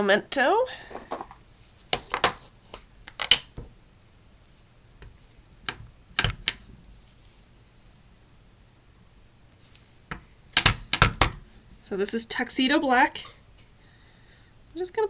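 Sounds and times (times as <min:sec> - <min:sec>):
plastic case clicks and taps: 0:10.1 - 0:11.4.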